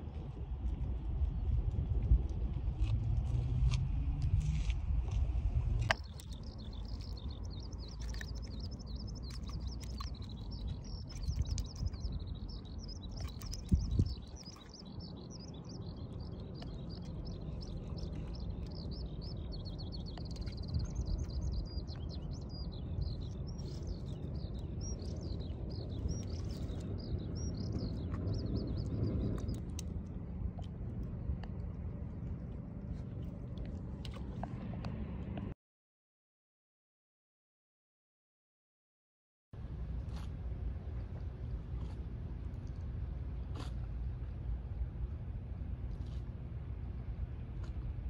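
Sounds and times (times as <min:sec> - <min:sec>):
low background rumble: 0:00.0 - 0:35.6, 0:39.6 - 0:48.0
small birds chirping: 0:05.9 - 0:29.9.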